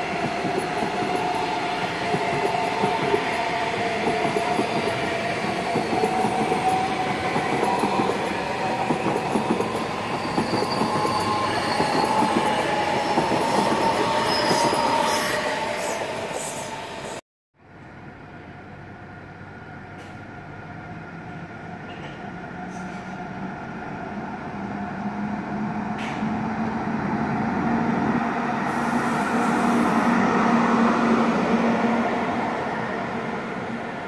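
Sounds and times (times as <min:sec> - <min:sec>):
train wheel noise: 0:00.0 - 0:17.2.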